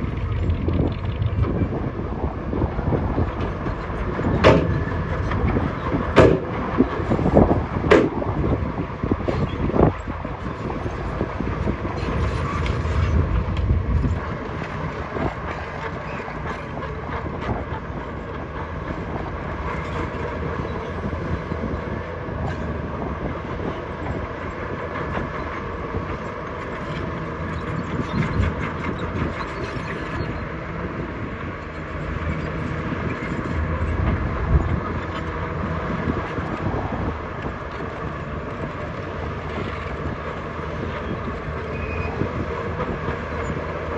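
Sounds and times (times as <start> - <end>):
diesel engine running under load: 0.0 - 43.9
steel parts clanking and rattling: 3.4 - 7.2.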